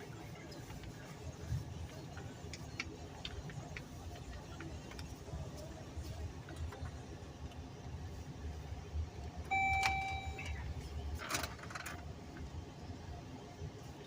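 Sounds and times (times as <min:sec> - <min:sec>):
electronic chime tone: 0:09.5 - 0:10.6.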